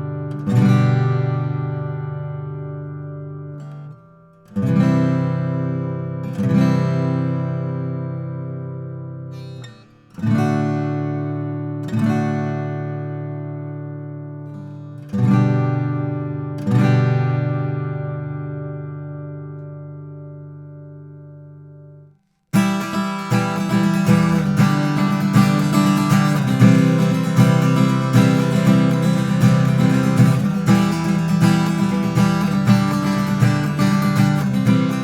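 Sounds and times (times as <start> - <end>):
acoustic guitar strummed chords: 0.0 - 35.0.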